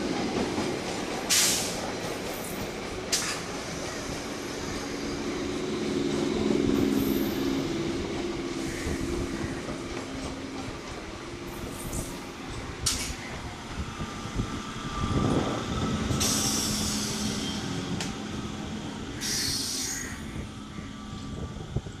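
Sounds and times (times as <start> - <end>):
train rumbling with low hum: 0.0 - 22.0
high hiss from wheels: 1.3 - 1.9, 16.1 - 18.0, 19.2 - 20.2.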